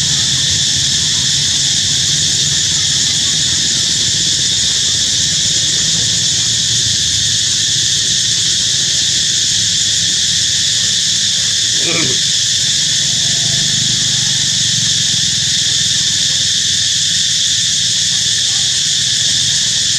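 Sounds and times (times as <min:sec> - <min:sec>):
insect chorus drone: 0:00.0 - 0:19.9.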